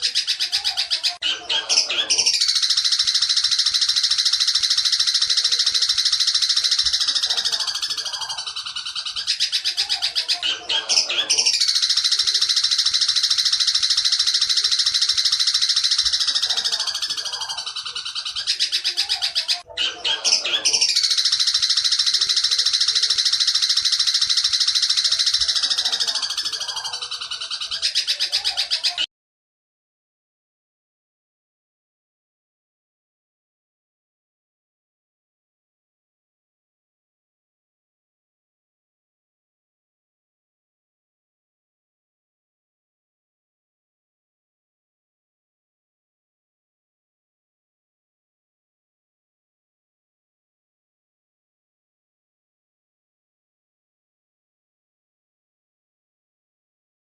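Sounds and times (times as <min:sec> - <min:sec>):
bird singing high-pitched trill: 0:00.0 - 0:29.1.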